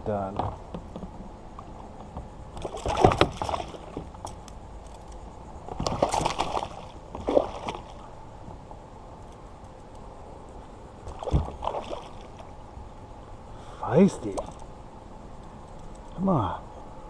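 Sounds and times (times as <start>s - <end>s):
fish thrashing in water: 2.6s - 4.0s, 5.8s - 8.0s, 11.1s - 12.5s.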